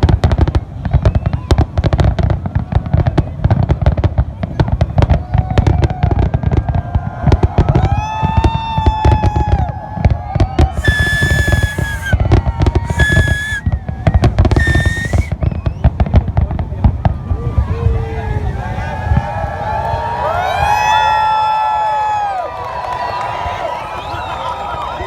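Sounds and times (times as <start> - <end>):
fireworks bangs and crackles: 0.0 - 20.9
shrill firework whistles: 10.5 - 16.0.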